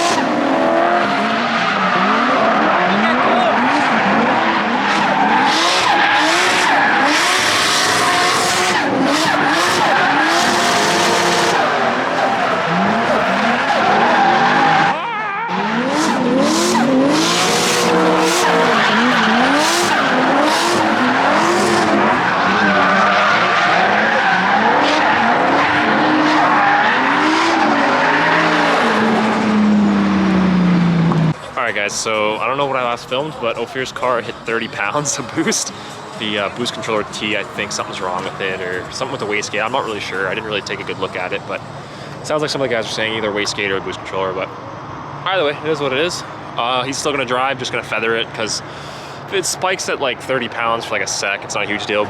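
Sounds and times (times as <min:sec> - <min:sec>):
tyres screeching: 0:00.0 - 0:29.6
car engines revving: 0:00.0 - 0:52.0.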